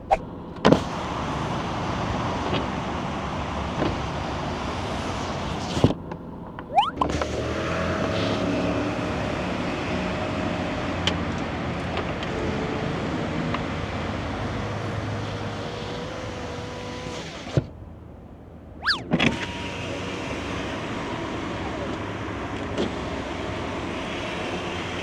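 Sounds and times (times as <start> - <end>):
car cabin road noise: 0.0 - 25.0
rising and falling tones: 6.7 - 7.3, 18.8 - 19.1.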